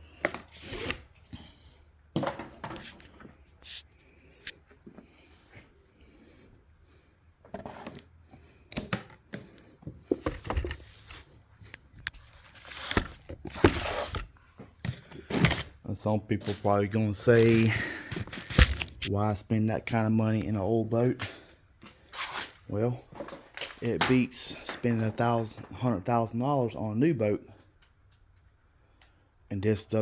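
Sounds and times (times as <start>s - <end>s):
packaging rustling: 17.2s - 19.1s.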